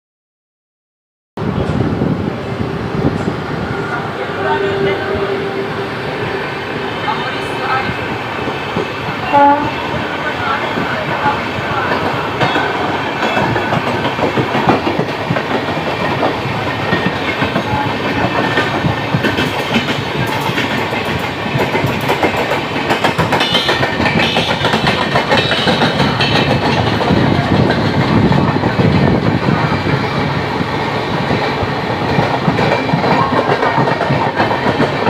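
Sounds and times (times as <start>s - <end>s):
train rumble: 1.4s - 35.0s
wheels clacking over rail joints: 9.9s - 29.0s.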